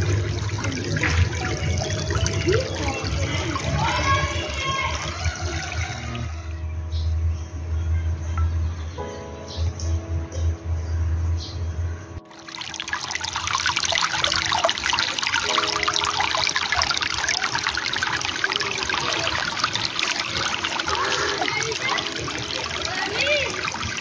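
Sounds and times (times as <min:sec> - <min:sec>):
water trickling and splashing: 0:00.0 - 0:06.4, 0:12.2 - 0:24.0
music: 0:00.0 - 0:24.0.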